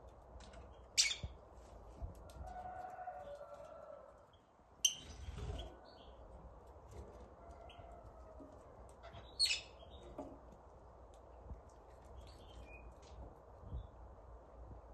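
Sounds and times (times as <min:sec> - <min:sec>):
birds chirping: 0:09.0 - 0:10.2.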